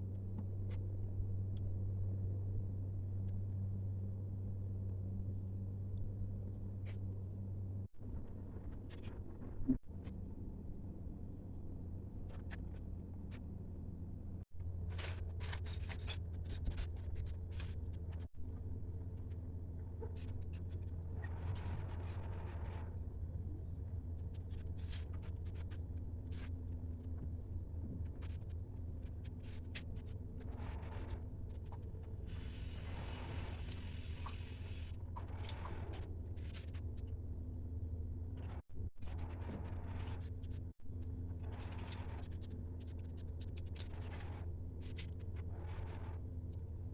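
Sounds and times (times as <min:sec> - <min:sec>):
steady low hum: 0:00.0 - 0:46.9
paper rustling and scraping: 0:14.8 - 0:18.3, 0:24.3 - 0:27.0.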